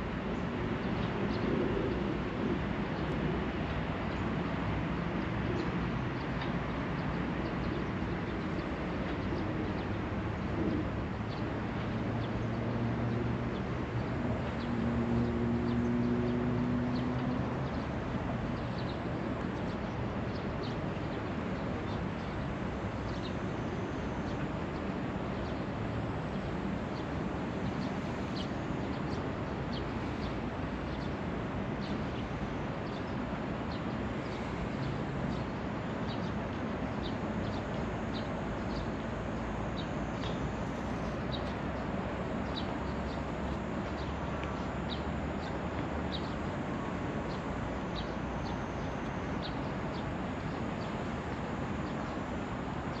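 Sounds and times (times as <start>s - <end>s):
small birds chirping: 31.8s - 46.5s.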